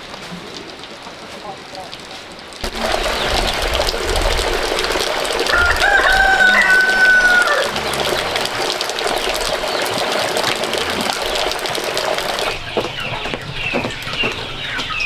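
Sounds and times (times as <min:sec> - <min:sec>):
chickens clucking: 0:05.4 - 0:15.0
rooster crowing: 0:05.5 - 0:08.0.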